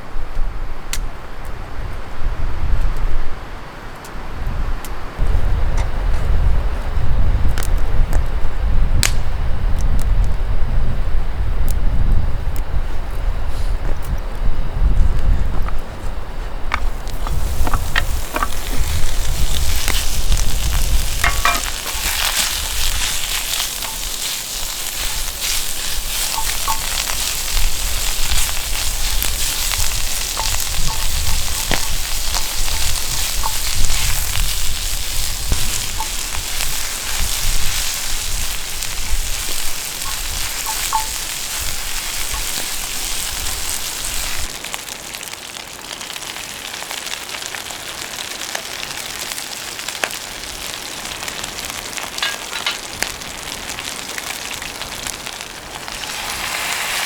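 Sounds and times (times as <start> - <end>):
food sizzling in a pan: 16.8 - 57.0.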